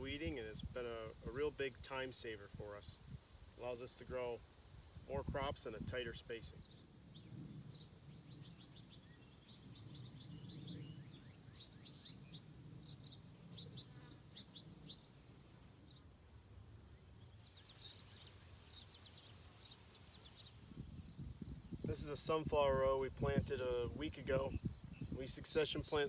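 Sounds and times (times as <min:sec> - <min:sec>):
bird chirps: 0:06.6 - 0:15.1, 0:24.0 - 0:26.0
insects buzzing: 0:06.6 - 0:26.0.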